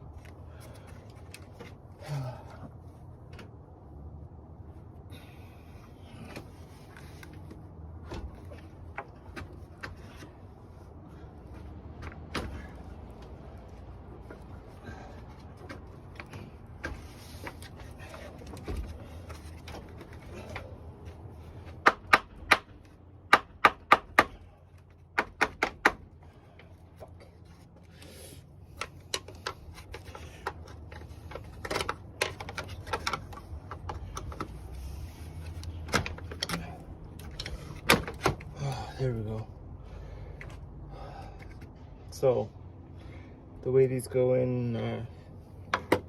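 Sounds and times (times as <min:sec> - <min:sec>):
clicks and knocks of tools: 0:28.7 - 0:34.6, 0:35.4 - 0:38.5.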